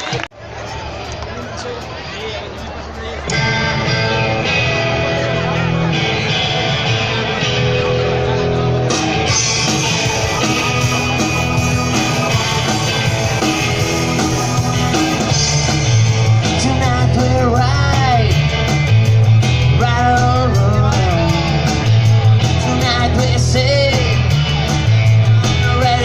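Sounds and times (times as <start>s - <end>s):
rock band playing: 3.2s - 26.0s.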